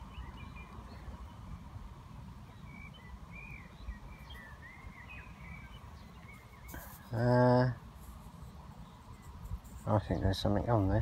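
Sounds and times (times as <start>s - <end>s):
bird chirping: 0.0s - 1.8s, 2.4s - 7.6s.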